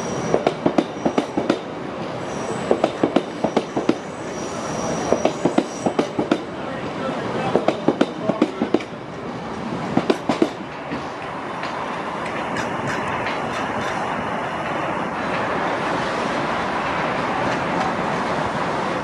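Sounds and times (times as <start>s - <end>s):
train rolling rumble: 0.0s - 19.0s
train wheels clacking over rail joints: 2.6s - 4.1s, 4.9s - 6.5s, 9.9s - 15.5s.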